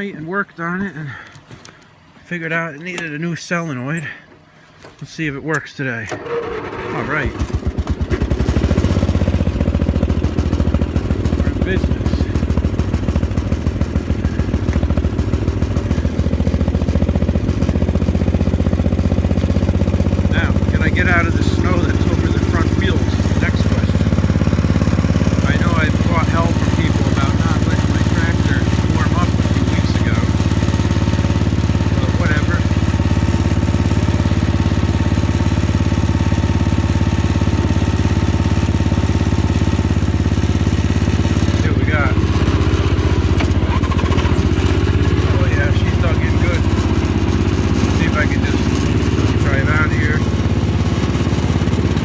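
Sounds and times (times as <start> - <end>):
garden tractor engine running: 0.0 - 52.0.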